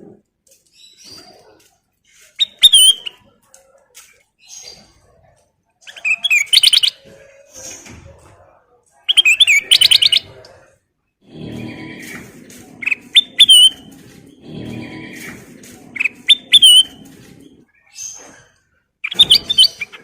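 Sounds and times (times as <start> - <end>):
bird sharp calls: 9.1 - 10.4, 11.3 - 20.0
bird singing whistled notes: 12.8 - 13.9, 16.0 - 17.0, 19.0 - 20.0.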